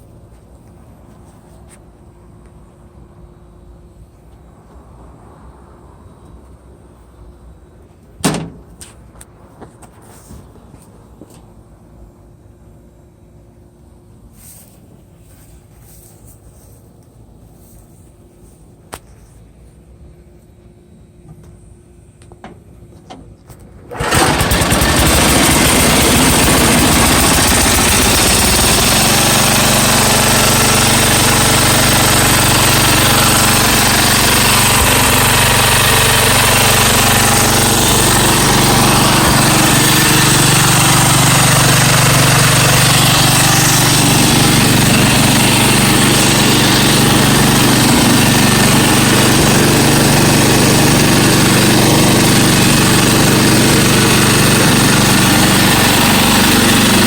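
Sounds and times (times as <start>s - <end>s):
lawn tractor engine running: 23.8s - 57.0s.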